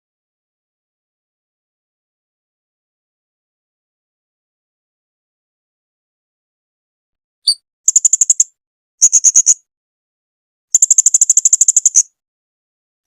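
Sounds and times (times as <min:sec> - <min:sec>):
high-pitched chirping trills: 0:07.4 - 0:09.6, 0:10.8 - 0:12.1.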